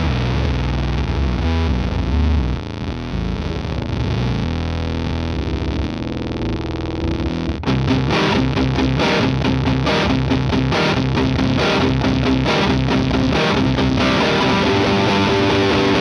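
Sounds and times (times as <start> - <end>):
fuzzy electric guitar: 0.0 - 16.0
fast picked guitar notes: 7.6 - 16.0.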